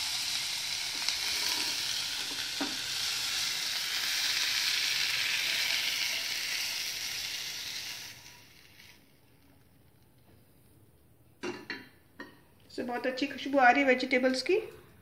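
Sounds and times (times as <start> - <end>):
vegetables sizzling in hot oil: 0.0 - 9.3.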